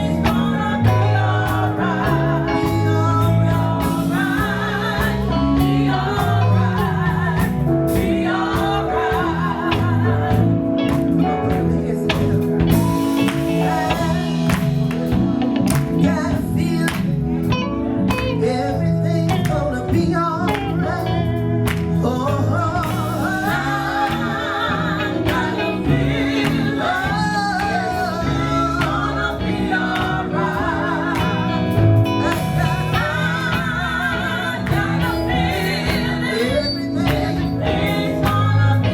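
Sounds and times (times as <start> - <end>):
band playing held chords: 0.0 - 38.9
person singing with vibrato: 22.0 - 38.9.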